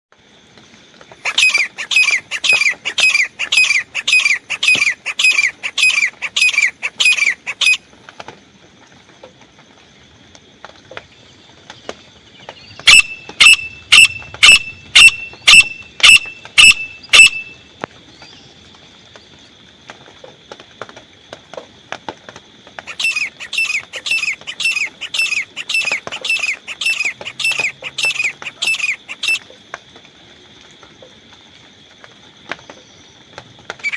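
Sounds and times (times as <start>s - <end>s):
francolin shrill calls: 1.2s - 7.8s, 12.7s - 17.6s, 22.8s - 29.4s.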